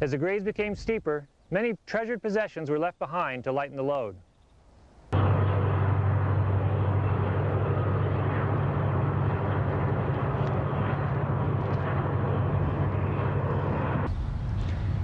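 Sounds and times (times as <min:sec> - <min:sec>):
freight train rolling by: 0:05.2 - 0:15.0.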